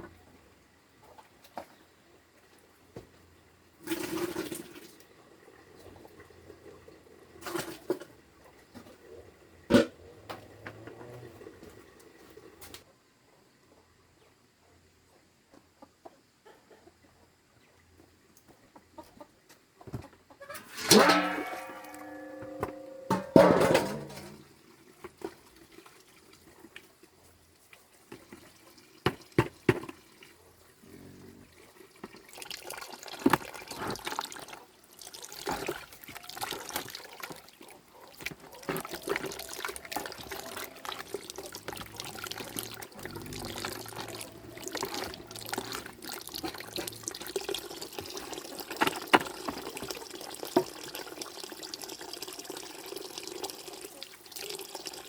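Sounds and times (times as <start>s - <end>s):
water running and splashing: 31.5s - 55.0s.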